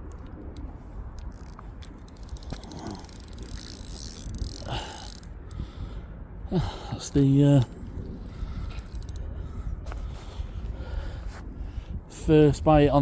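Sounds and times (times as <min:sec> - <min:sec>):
fishing reel clicking: 0:01.2 - 0:05.6, 0:08.8 - 0:09.2.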